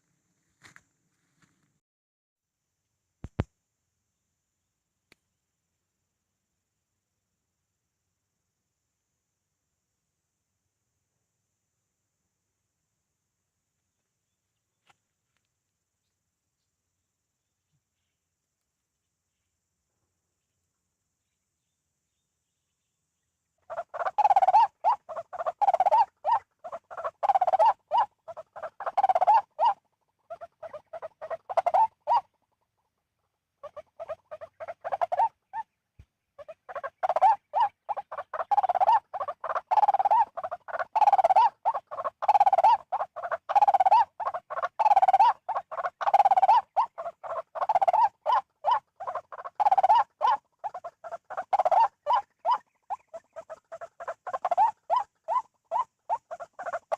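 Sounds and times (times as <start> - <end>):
waterhen harsh croaking calls: 23.7 - 32.4, 33.6 - 35.7, 36.4 - 56.9.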